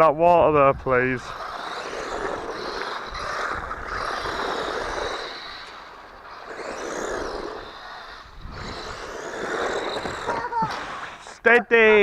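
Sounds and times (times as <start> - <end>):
toy car tyre noise: 0.7 - 11.4
electric toy car motor whine: 1.0 - 11.4.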